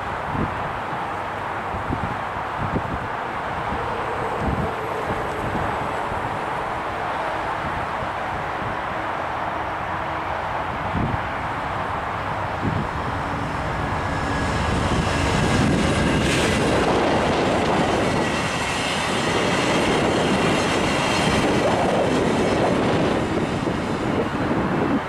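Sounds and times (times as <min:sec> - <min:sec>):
train wheels rumbling on rails: 0:00.0 - 0:25.0
faint high-pitched squeal: 0:03.6 - 0:07.6.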